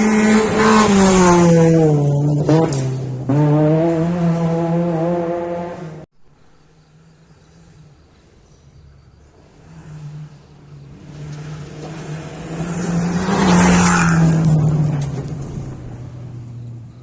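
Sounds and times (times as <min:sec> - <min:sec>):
rally car engine passing by: 0:00.0 - 0:06.0, 0:08.8 - 0:17.0
tyre and wind noise: 0:11.7 - 0:16.8.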